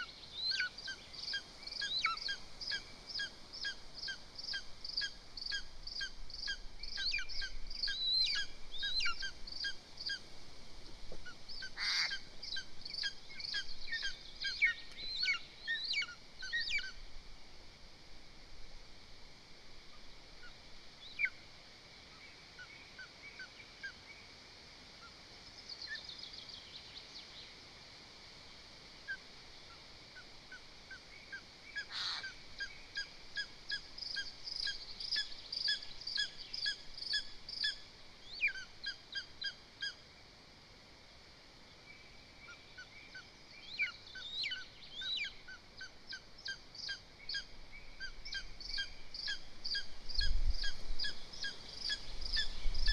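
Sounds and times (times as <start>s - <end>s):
eagles yelping calls: 11.8s - 12.2s, 31.9s - 32.3s.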